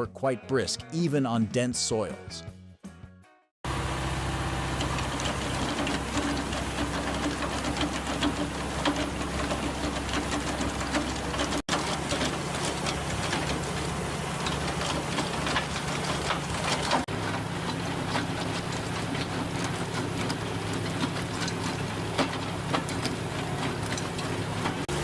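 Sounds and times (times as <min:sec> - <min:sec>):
trenching machine engine humming: 0:03.6 - 0:25.0
digging chain clattering: 0:05.0 - 0:24.9.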